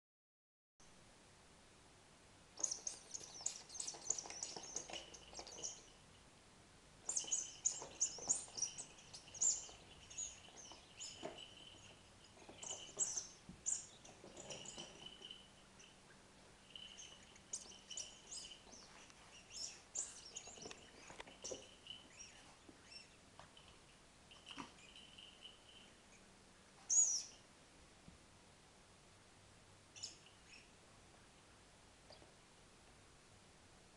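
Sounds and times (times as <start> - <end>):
bird-like chirping and twittering: 2.6 - 6.0, 7.0 - 23.2, 26.9 - 27.5, 29.9 - 30.8.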